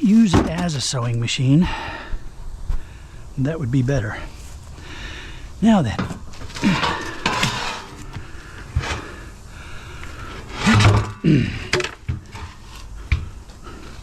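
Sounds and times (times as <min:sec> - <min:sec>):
scrap metal clattering: 0:05.9 - 0:09.2, 0:10.2 - 0:12.9
person grunting: 0:10.7 - 0:11.7.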